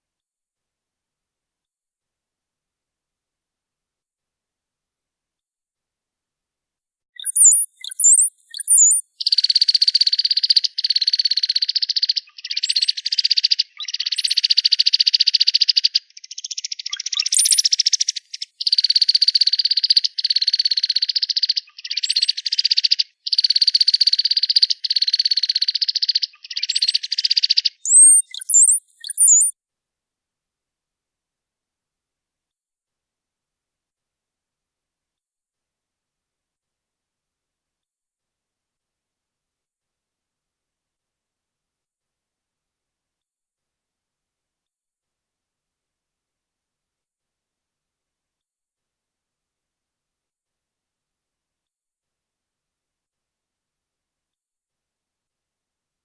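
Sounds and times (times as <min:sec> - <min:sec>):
high whistled bird notes: 0:07.2 - 0:09.5, 0:17.0 - 0:18.8, 0:26.6 - 0:29.5
rapid buzzy bird trills: 0:07.2 - 0:29.5.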